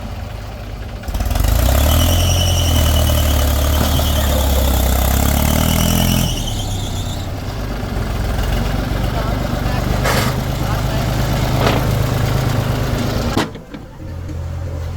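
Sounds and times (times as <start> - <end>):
backhoe diesel engine running: 0.0 - 14.9
high-pitched squeal: 1.8 - 7.5.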